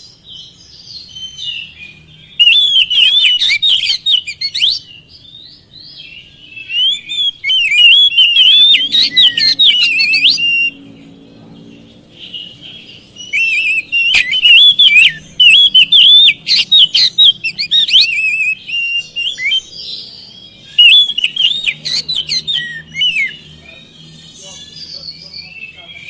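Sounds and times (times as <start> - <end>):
bird singing whistled phrases: 0.9 - 10.8, 13.2 - 23.5.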